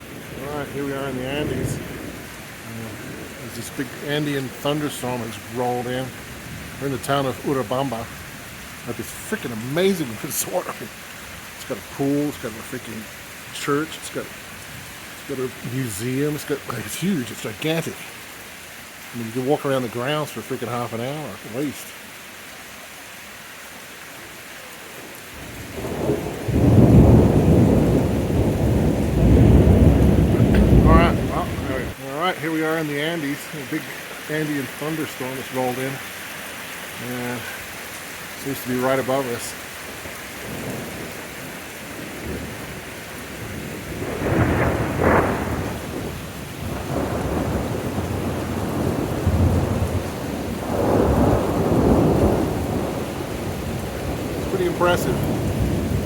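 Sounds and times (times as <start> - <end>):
deep rolling thunder: 0.0 - 10.7, 25.4 - 32.0, 40.3 - 56.0
rain hissing: 0.0 - 56.0.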